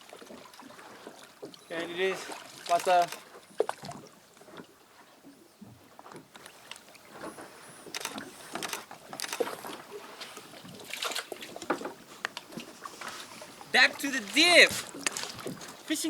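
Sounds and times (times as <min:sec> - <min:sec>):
water splashing against kayak: 0:00.0 - 0:16.0.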